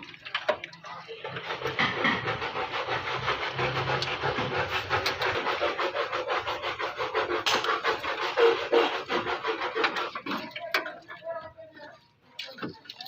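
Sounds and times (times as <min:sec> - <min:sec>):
rapid rubbing strokes: 0:01.1 - 0:11.1.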